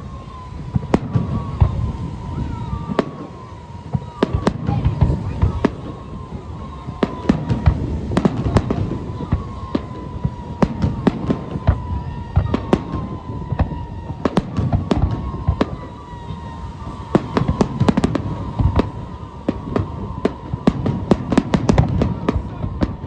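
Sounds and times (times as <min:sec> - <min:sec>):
fireworks bangs and crackles: 0:00.0 - 0:23.0
low rumble of booms: 0:00.0 - 0:23.0.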